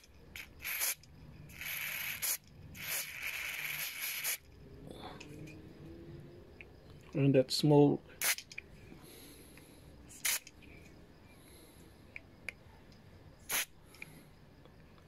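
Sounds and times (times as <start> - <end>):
aerosol spray hissing: 0.4 - 4.4, 10.1 - 10.5, 13.4 - 13.7.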